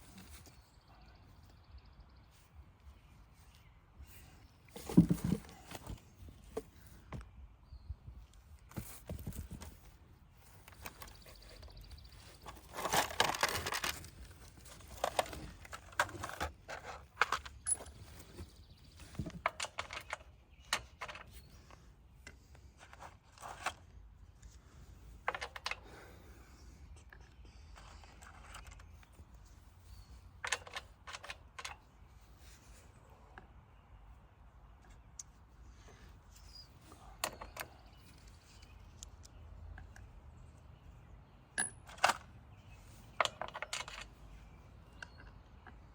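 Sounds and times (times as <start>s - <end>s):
rustling: 3.3s - 6.9s
small parts and tools clicking: 27.0s - 29.2s.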